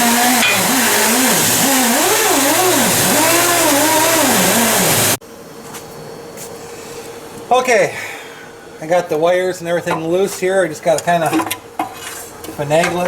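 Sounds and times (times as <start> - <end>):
loud motor whine: 0.0 - 5.2.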